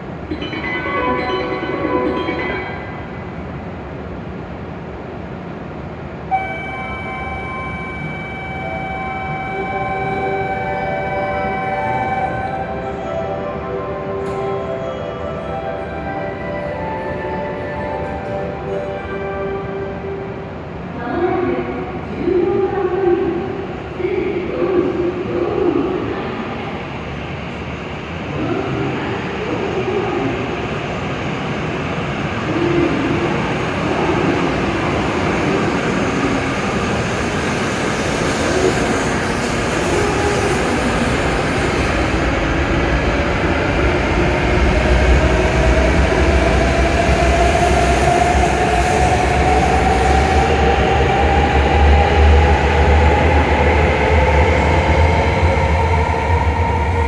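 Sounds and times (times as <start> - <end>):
train rumble: 0.0 - 57.0
train motor whine: 6.3 - 12.7.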